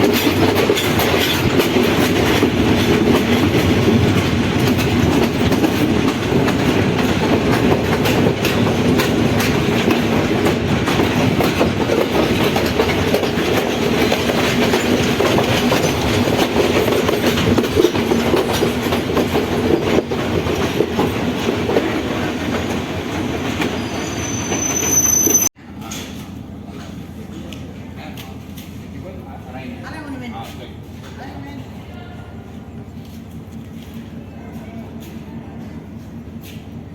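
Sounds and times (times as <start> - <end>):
wheels clicking over rail joints: 0.0 - 23.8
train running on rails: 0.0 - 36.9
high wheel squeal: 23.5 - 25.5.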